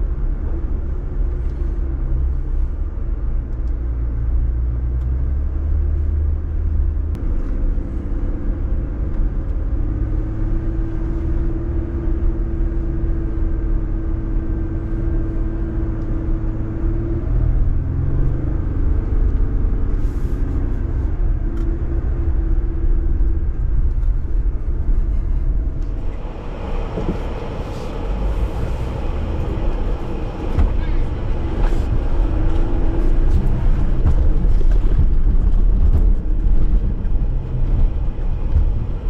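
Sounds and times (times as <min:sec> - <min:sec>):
car engine rumbling while driving: 0:00.0 - 0:39.0
broad rushing noise: 0:25.1 - 0:39.0.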